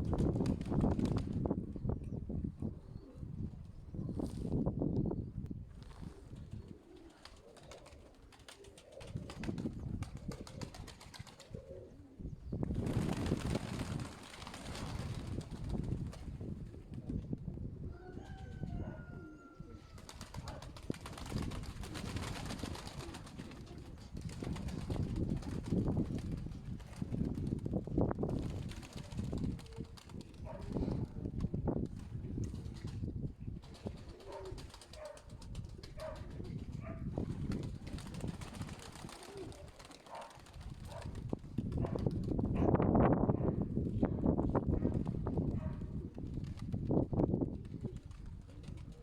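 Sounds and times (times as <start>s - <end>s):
wind rumbling on microphone: 0.0s - 6.8s, 9.0s - 49.0s
pigeons cooing: 6.0s - 9.5s, 10.1s - 12.4s, 17.8s - 20.8s, 34.0s - 37.0s, 38.7s - 41.2s.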